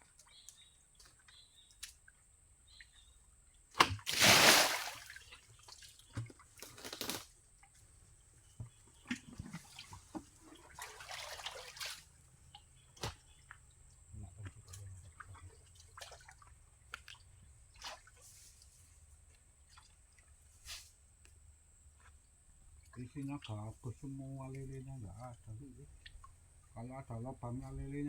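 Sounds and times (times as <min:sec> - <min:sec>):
water splashing and sloshing: 0:03.8 - 0:07.8, 0:09.0 - 0:13.6, 0:14.5 - 0:18.8, 0:19.5 - 0:20.6.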